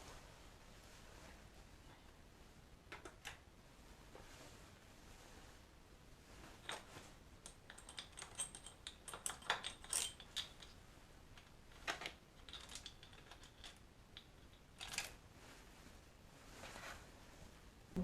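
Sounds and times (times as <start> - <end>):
metallic clinks of small tools: 7.7 - 10.7.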